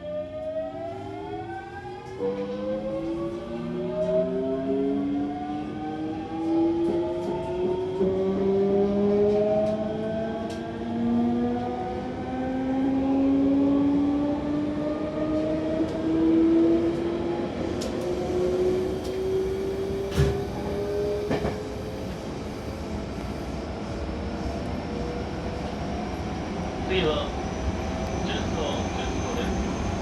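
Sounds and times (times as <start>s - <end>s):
train running gear rumble: 17.0s - 30.0s.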